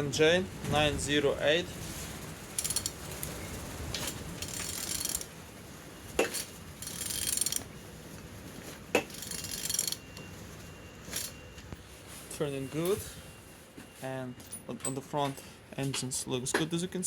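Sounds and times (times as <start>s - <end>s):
ratchet wrench strokes: 2.5s - 3.4s, 4.0s - 5.3s, 6.4s - 7.7s, 9.0s - 10.0s.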